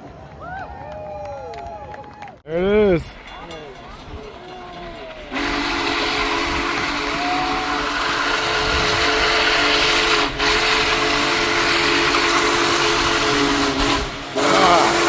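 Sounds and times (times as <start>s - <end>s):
steam whistle blowing a chord: 5.3s - 15.0s
hiss of steam: 5.4s - 15.0s.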